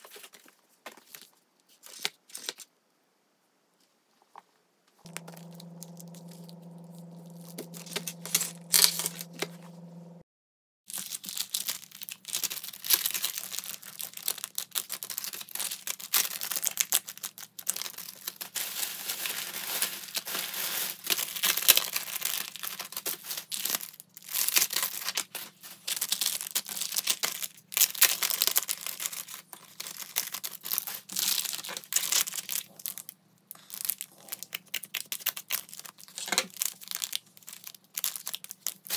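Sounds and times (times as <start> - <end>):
steady low hum: 5.1 - 10.3
plastic bags crinkling: 10.9 - 38.9
plastic sleeve rustling: 10.9 - 38.9.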